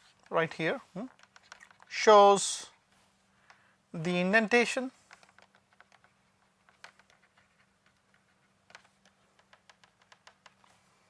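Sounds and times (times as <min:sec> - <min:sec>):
faint clicks and taps: 0:00.0 - 0:02.0, 0:03.3 - 0:03.8, 0:04.8 - 0:11.0
faint steady hum: 0:00.0 - 0:11.0.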